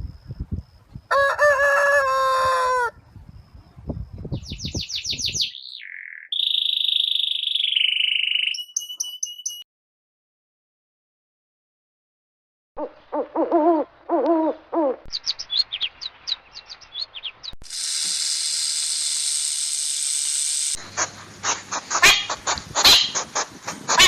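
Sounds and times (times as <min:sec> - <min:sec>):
high chirps: 0:04.4 - 0:09.6, 0:15.1 - 0:23.2
steady hiss: 0:17.7 - 0:21.9.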